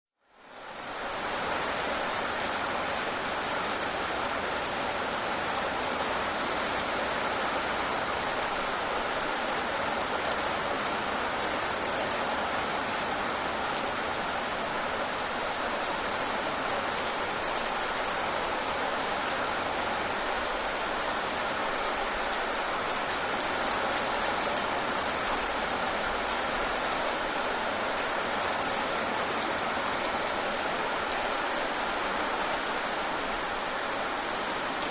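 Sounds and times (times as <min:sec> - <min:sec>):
steady rain falling: 0:00.2 - 0:34.9.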